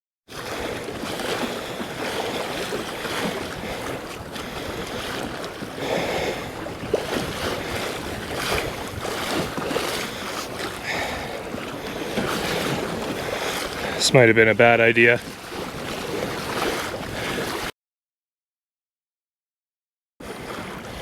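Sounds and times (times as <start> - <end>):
waves splashing against kayak hull: 0.3 - 17.7, 20.2 - 21.0
wind buffeting microphone: 0.5 - 14.1.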